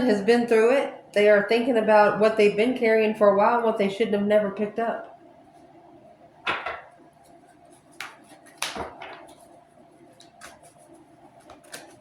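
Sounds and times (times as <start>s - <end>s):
cards swishing and tapping: 7.2s - 12.0s.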